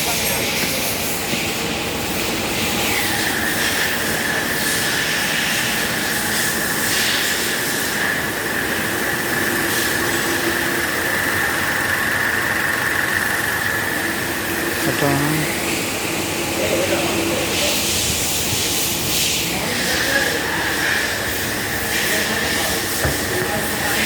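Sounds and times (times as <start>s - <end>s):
car engine running with whine: 0.0s - 17.5s.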